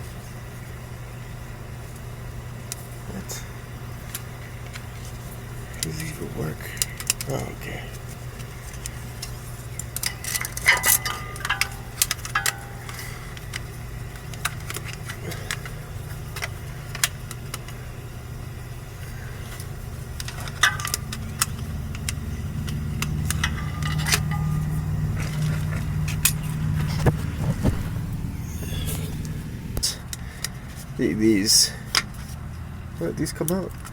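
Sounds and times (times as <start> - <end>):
vehicle engine hum: 3.1 - 33.9
metal hand tools clinking: 10.0 - 13.6, 20.3 - 26.8.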